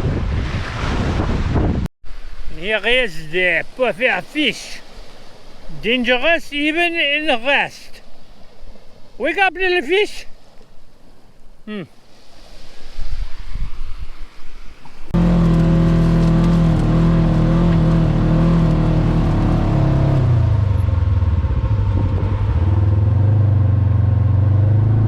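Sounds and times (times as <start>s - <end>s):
vehicle engine running: 15.2s - 25.0s.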